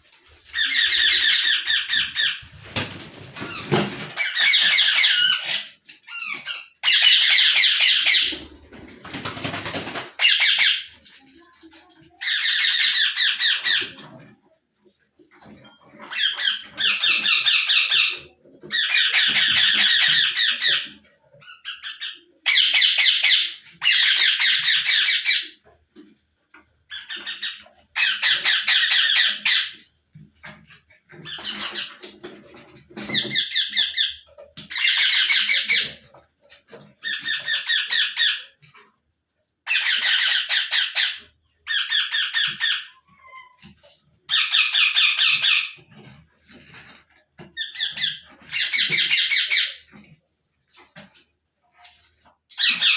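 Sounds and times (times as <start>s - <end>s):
parakeet squawking: 52.5s - 52.9s.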